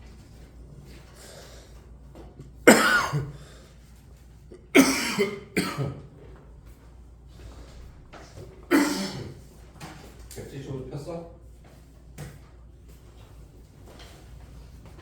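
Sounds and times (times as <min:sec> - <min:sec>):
person coughing: 0:02.7 - 0:03.4, 0:04.5 - 0:06.0, 0:08.7 - 0:09.4.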